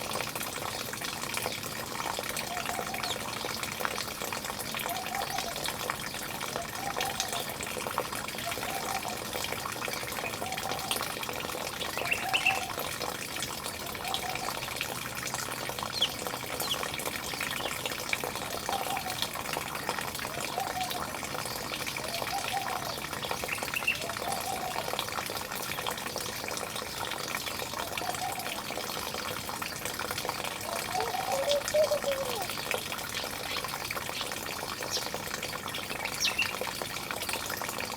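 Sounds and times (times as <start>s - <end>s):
running water: 0.0s - 37.9s
bird short low call: 30.7s - 32.6s.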